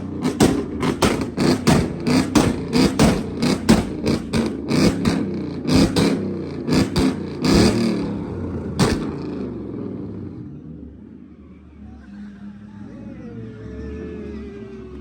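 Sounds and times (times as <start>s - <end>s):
exhaust pops and bangs: 0.0s - 9.6s
car engine revving: 0.0s - 11.4s.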